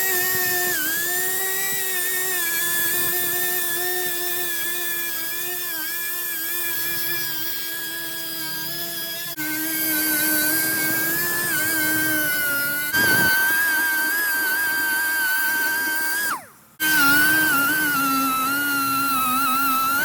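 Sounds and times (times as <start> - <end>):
power tool high whine: 0.0 - 20.0.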